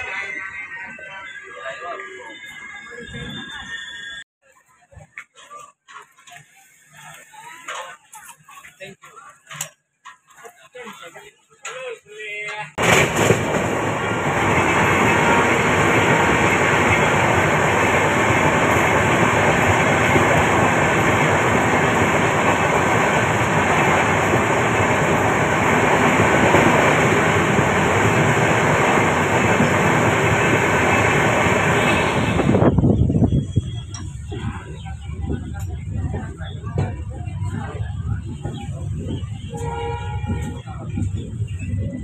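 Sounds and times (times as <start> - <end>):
train wheels rumbling on rails: 12.6 - 42.0.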